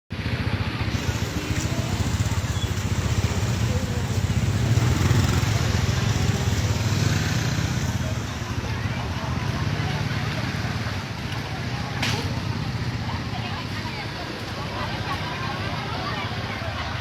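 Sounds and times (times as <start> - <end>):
heavy rain hiss: 0.9 - 11.2.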